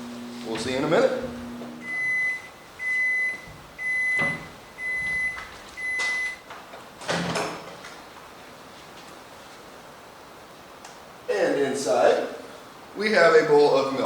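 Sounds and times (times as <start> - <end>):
microwave oven beeping: 0.0 - 6.5.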